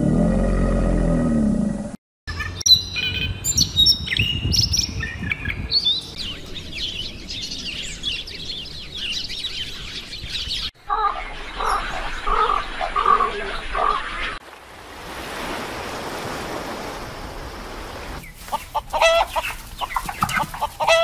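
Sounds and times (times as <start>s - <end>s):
sparrows chirping: 2.3s - 14.4s, 18.2s - 21.0s.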